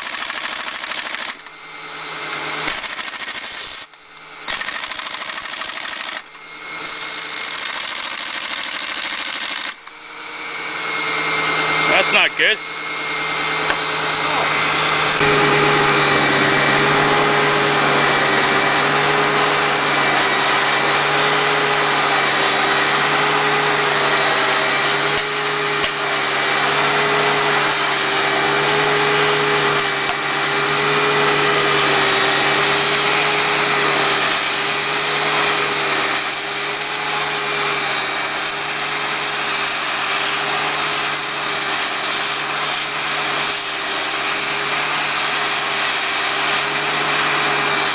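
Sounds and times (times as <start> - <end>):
excavator engine and hydraulics: 0.0 - 39.5
steady whine: 9.9 - 23.6.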